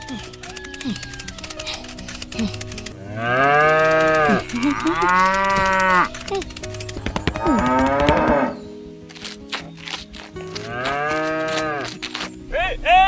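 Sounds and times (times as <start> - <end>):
cow mooing: 3.0 - 6.3, 7.4 - 8.6, 10.6 - 11.9.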